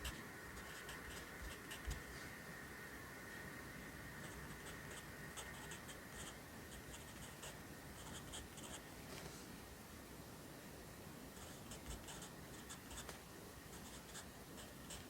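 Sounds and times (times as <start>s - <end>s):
pencil scratching on paper: 0.0s - 2.1s, 4.2s - 8.8s, 11.4s - 13.1s, 13.7s - 15.0s.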